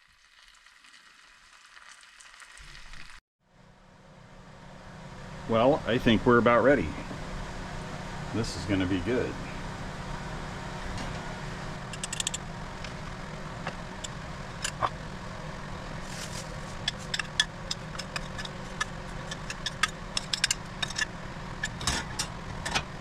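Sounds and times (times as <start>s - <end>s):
low hum: 3.5s - 23.0s
utensil scraping cookware: 11.9s - 13.0s, 16.0s - 23.0s.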